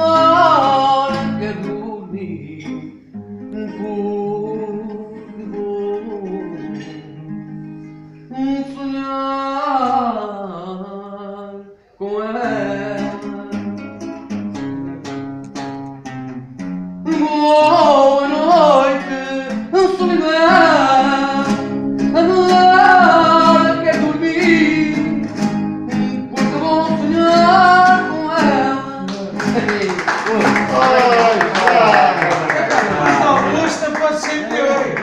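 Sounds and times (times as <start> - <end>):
guitar melody with bending notes: 0.0 - 8.3, 12.5 - 31.2
plucked guitar chords: 0.0 - 8.9, 12.4 - 32.1.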